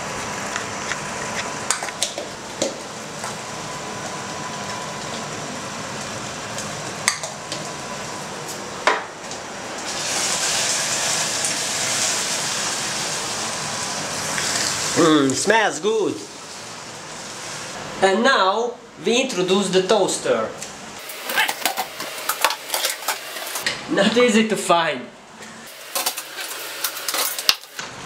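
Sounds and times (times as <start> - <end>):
food sizzling in a pot: 9.8 - 15.2, 21.0 - 23.6, 25.7 - 27.8.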